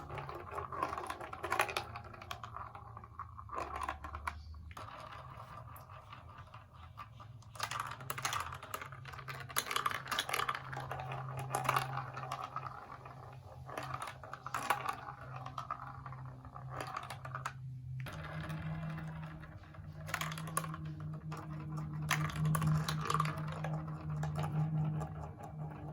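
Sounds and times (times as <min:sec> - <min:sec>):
plastic pieces clicking and clattering: 0:07.6 - 0:15.8, 0:16.6 - 0:25.8.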